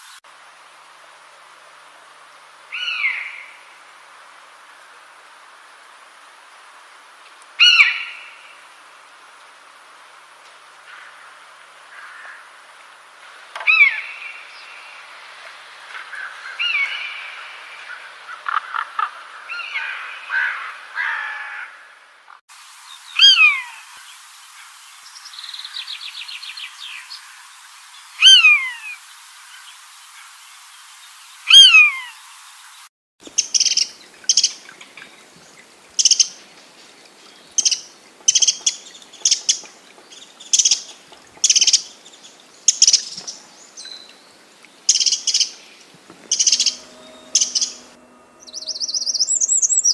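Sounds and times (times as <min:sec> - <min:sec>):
overlapping bird calls: 0:33.2 - 0:49.9
fast high bird chirps: 0:37.6 - 0:39.6, 0:46.2 - 0:49.9
downward sliding bird note: 0:46.1 - 0:49.9.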